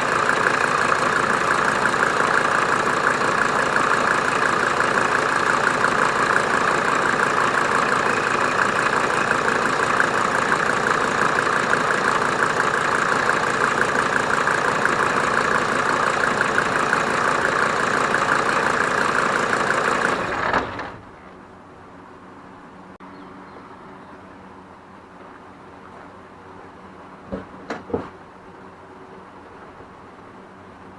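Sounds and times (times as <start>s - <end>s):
diesel engine idling: 0.0s - 22.1s.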